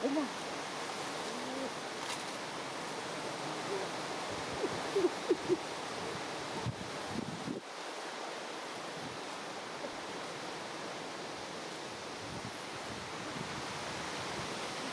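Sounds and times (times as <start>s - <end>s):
steady outdoor hiss: 0.0s - 14.9s
low hoot-like animal calls: 3.6s - 3.9s, 4.6s - 5.7s.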